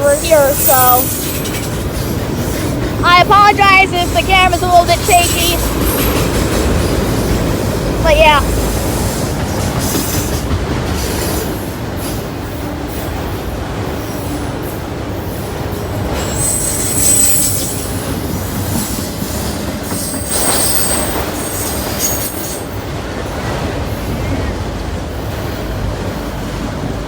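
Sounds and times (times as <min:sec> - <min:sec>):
train cars rumbling on rails: 0:00.0 - 0:27.0
wheel squeals: 0:16.1 - 0:18.0.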